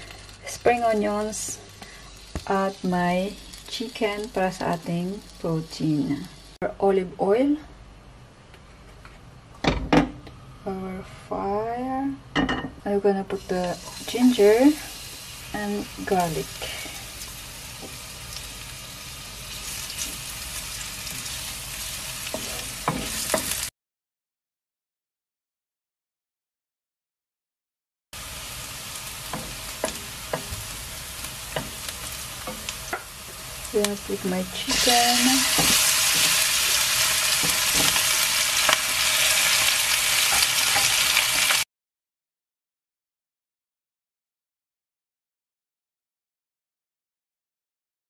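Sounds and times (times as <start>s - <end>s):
garlic sizzling in hot oil: 0.0s - 6.6s, 13.3s - 23.7s, 28.2s - 41.6s.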